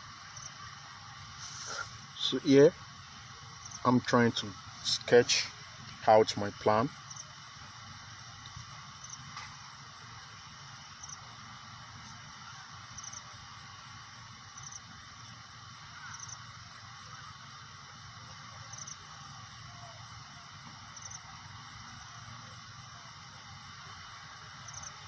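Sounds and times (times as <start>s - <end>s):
steady background hiss: 0.0s - 25.0s.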